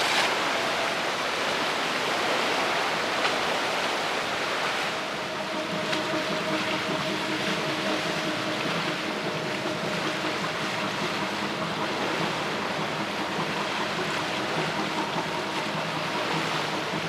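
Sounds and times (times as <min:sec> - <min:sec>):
ferry machinery drone: 0:00.0 - 0:17.0.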